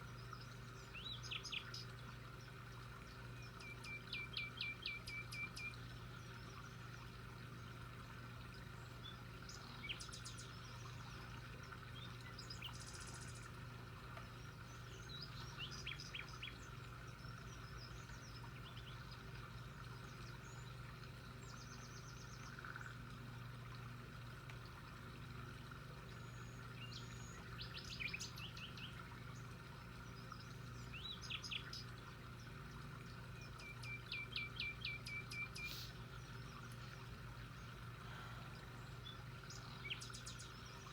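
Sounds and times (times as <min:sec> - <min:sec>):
steady low hum: 0:00.0 - 0:40.9
birds chirping: 0:26.1 - 0:40.9.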